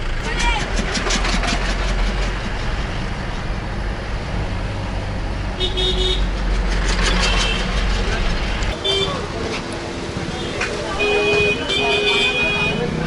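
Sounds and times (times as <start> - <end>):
road traffic: 0.0 - 13.0
vehicle horn tooting: 5.6 - 6.3, 8.8 - 9.2, 10.4 - 13.0.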